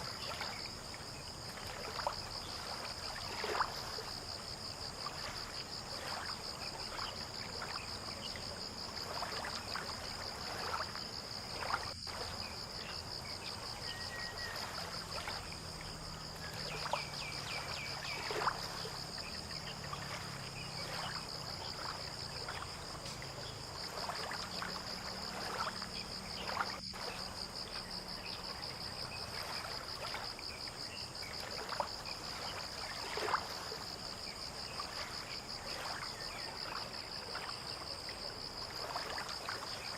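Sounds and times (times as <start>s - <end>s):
insect trill: 0.0s - 39.9s
lapping water: 0.0s - 39.9s
faint low engine hum: 15.3s - 25.6s.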